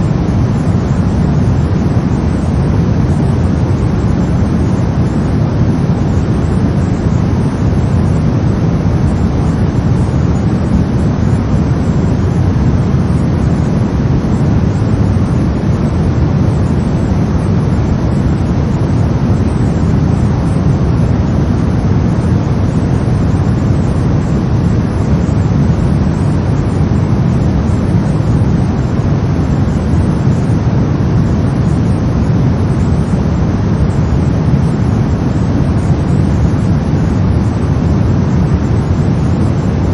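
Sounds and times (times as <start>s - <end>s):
brown noise: 0.0s - 39.9s.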